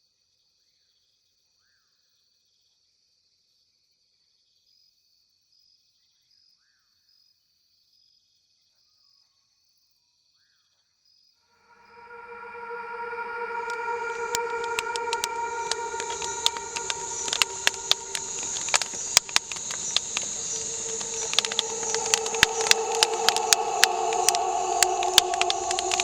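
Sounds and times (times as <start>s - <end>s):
high insect drone: 11.8s - 26.0s.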